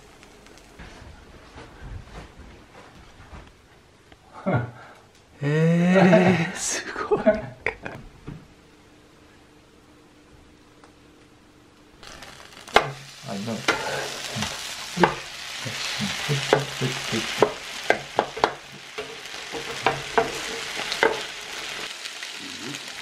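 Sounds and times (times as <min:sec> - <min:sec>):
pancakes sizzling on hot plate: 0:12.0 - 0:23.0
metal spatula scraping plate: 0:13.7 - 0:14.2.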